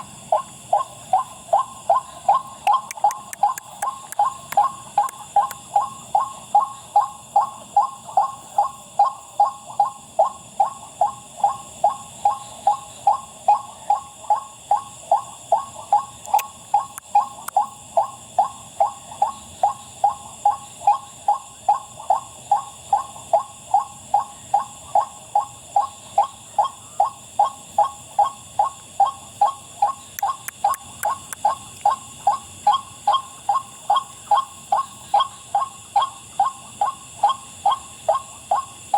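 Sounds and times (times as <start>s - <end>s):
insect chorus: 0.0s - 38.9s
bird wak calls: 0.3s - 10.7s, 25.0s - 38.8s.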